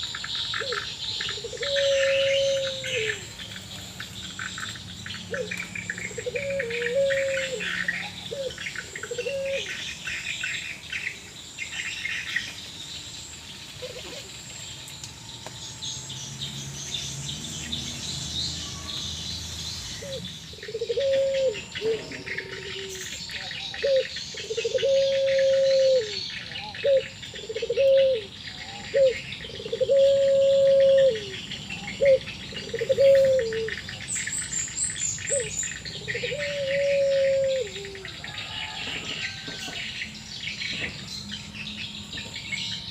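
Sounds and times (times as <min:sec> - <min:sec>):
doves cooing: 0:00.0 - 0:10.8, 0:13.7 - 0:14.6, 0:19.9 - 0:40.0
insects trilling: 0:00.0 - 0:42.9
small birds chirping: 0:00.0 - 0:42.9.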